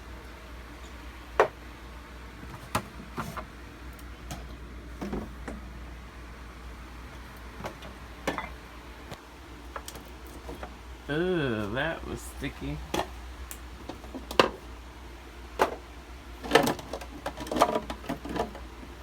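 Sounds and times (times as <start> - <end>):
steady low hum: 0.0 - 19.0
items clunking in a refrigerator: 2.3 - 5.8, 7.0 - 8.7, 9.6 - 10.8, 12.7 - 13.2, 13.8 - 14.7, 15.5 - 19.0.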